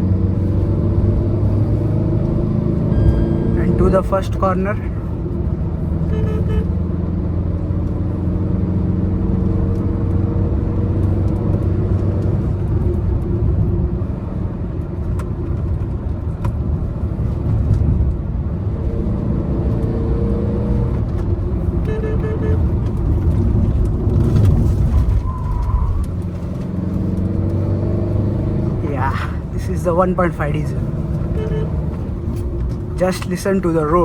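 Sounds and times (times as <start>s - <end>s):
diesel engine running under load: 0.0s - 6.9s.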